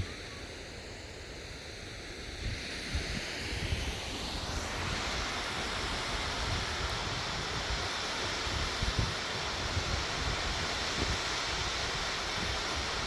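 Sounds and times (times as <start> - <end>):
wind buffeting microphone: 2.4 - 13.0
waterfall rushing: 4.3 - 13.0.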